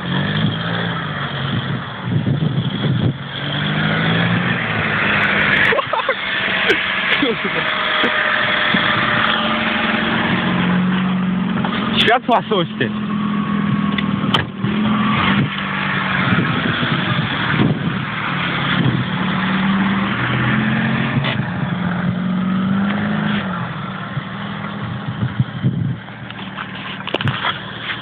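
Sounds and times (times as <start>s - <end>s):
small engine revving hard: 0.0s - 11.0s, 13.5s - 23.9s
tyre hiss and road noise: 0.0s - 28.0s.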